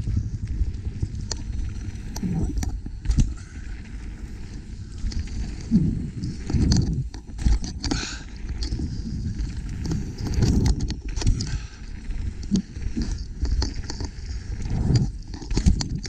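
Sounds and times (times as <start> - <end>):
bike rattling over rough trail: 0.0 - 16.0
wind on microphone: 0.0 - 16.0.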